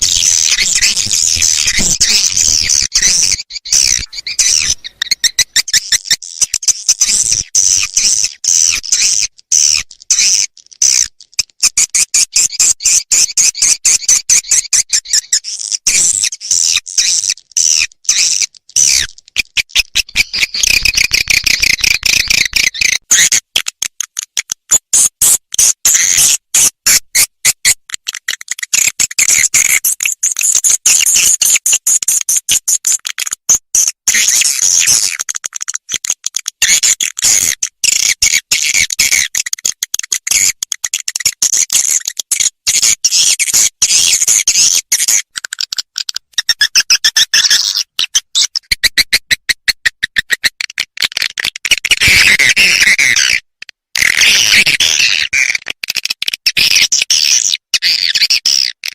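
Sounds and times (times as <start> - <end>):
recorded swiftlet chirps: 0.0 - 8.9.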